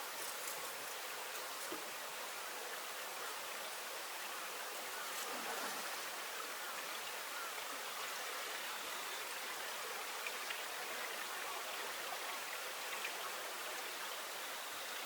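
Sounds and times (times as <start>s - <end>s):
stream water rushing: 0.0s - 15.0s
small water splashes: 5.0s - 6.5s.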